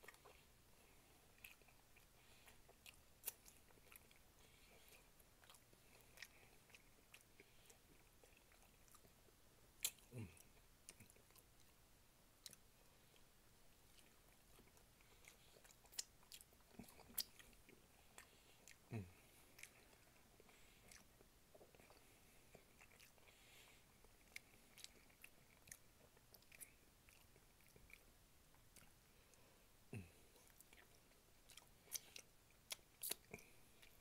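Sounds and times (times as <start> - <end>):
faint chewing of meat: 0.0 - 34.0
wet mouth clicks and lip smacks: 31.9 - 34.0.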